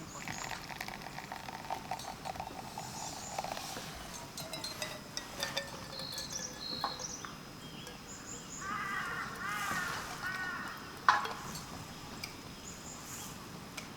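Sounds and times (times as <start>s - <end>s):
bird chirps: 5.5s - 10.8s
birds whistling: 5.9s - 13.3s.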